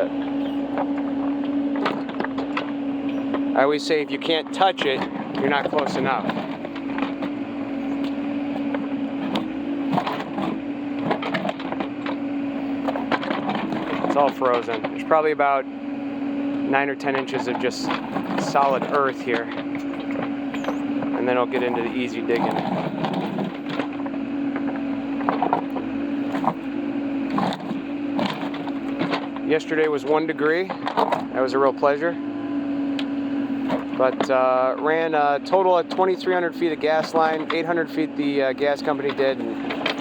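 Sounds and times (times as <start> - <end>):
excavator engine hum: 0.0 - 40.0
bucket scraping frozen ground: 16.7 - 24.0.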